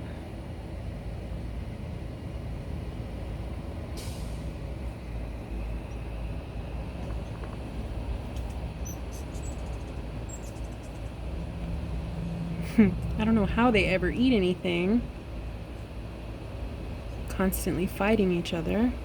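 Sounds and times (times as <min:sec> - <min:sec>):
low outdoor rumble: 0:00.0 - 0:19.0
hummingbird chirps: 0:08.4 - 0:13.3.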